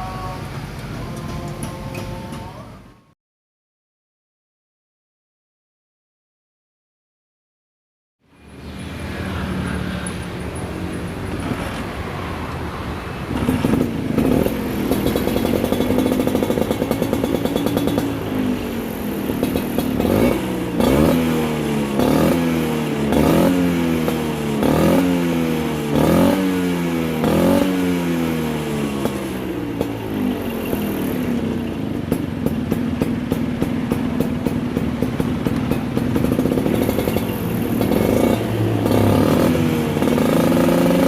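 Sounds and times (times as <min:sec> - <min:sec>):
scooter engine revving: 0:09.0 - 0:41.0.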